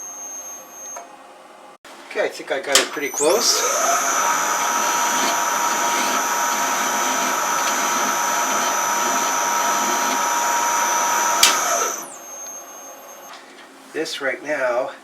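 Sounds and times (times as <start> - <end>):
electric motor whine: 3.1 - 13.3.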